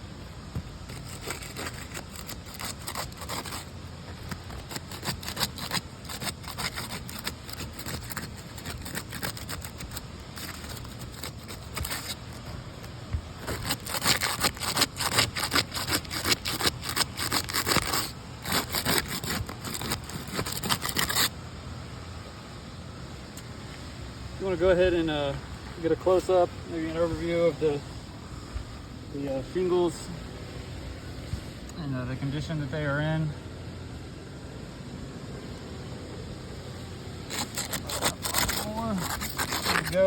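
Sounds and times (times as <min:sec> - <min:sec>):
scraping and crackling clicks: 0:00.9 - 0:21.3, 0:37.3 - 0:40.0.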